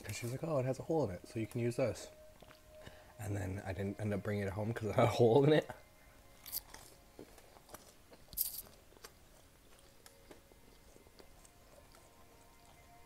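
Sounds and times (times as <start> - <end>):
mouth sounds chewing: 5.9 - 13.0.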